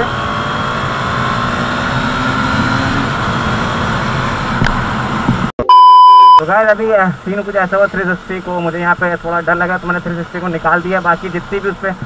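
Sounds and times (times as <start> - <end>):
motorcycle engine accelerating: 0.0 - 5.5.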